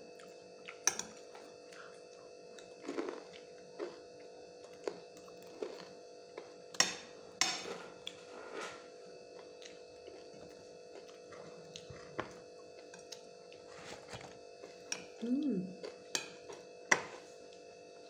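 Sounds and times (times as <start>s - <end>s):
chewing and crunching: 0.1s - 6.6s, 9.4s - 14.8s.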